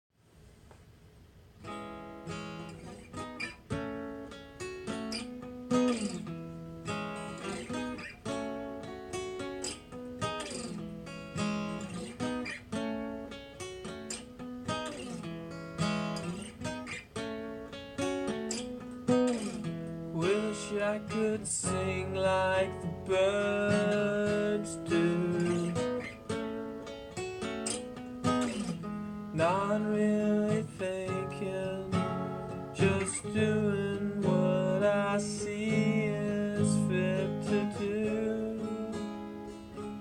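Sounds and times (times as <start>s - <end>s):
acoustic guitar strumming chords: 1.6s - 40.0s.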